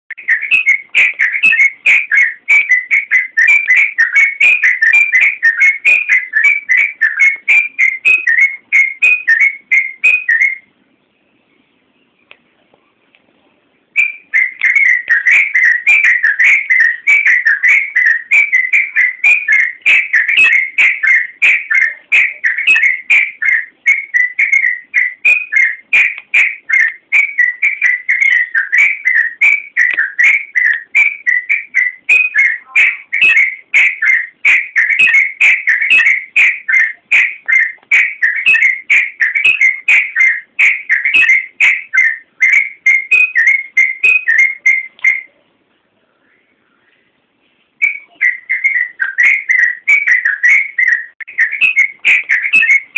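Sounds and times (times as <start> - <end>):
bird singing whistled chatter: 0.1 - 12.3, 14.0 - 45.4, 47.8 - 52.9.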